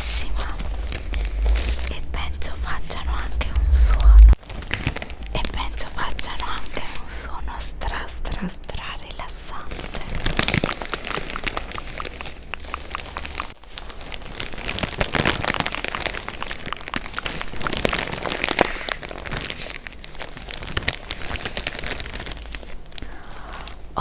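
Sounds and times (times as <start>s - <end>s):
packaging crinkling: 9.8s - 24.0s.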